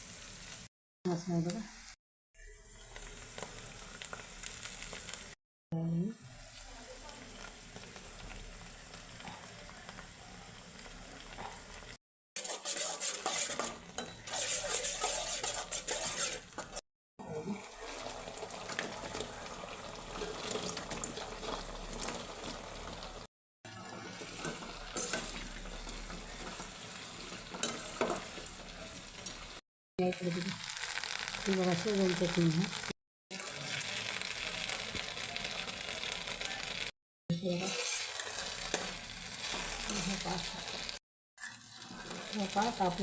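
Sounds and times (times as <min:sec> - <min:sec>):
food sizzling in a pan: 0:00.0 - 0:05.4, 0:06.1 - 0:16.8, 0:17.4 - 0:43.0
spoon stirring and scraping: 0:12.4 - 0:16.8, 0:23.7 - 0:29.6, 0:37.5 - 0:43.0.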